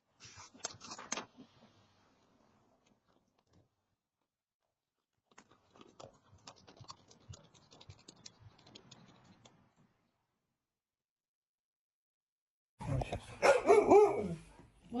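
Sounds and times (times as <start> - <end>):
rapid scratching and clicking: 5.0 - 9.9.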